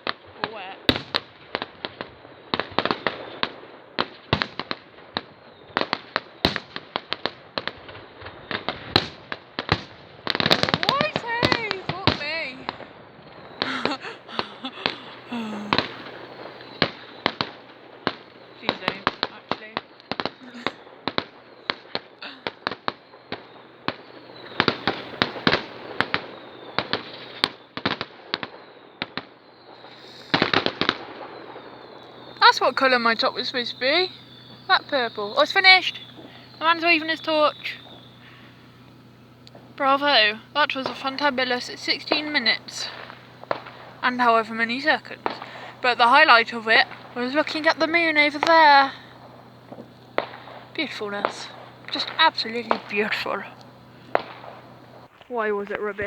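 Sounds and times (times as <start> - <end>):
fireworks bangs and crackling pops: 0.0 - 56.0
steady hiss: 10.3 - 28.0, 29.7 - 56.0.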